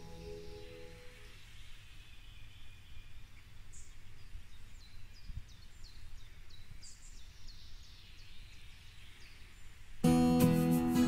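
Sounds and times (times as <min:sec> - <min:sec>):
songbird singing high notes: 0:00.0 - 0:03.1.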